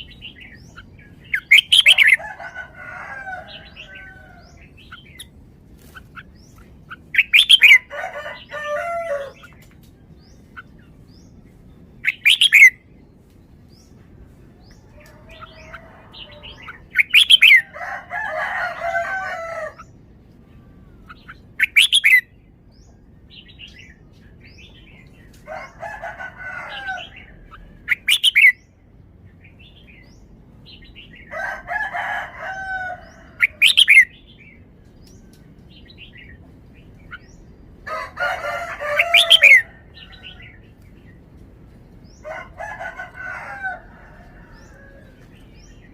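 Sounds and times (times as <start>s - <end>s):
bulbul singing warbled phrases: 0.0s - 2.8s, 3.4s - 11.4s, 12.0s - 12.9s, 14.6s - 18.1s, 20.6s - 22.6s, 25.6s - 28.8s.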